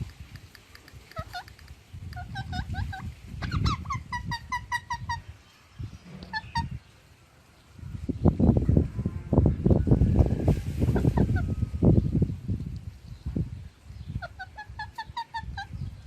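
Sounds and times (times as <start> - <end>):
parrot chirping: 0.8 - 5.3, 6.2 - 6.8, 14.1 - 15.8.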